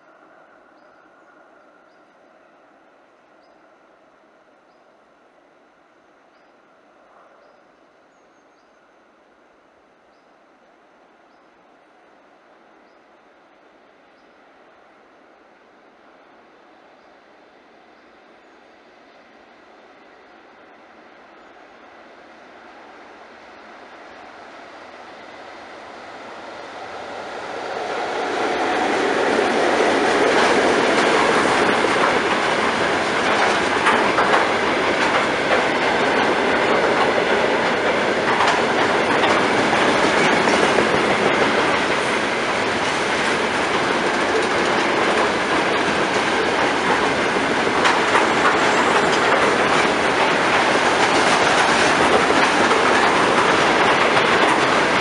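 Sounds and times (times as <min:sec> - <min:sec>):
freight train rolling past: 0:12.0 - 0:55.0
wheels clacking over rail joints: 0:26.6 - 0:55.0.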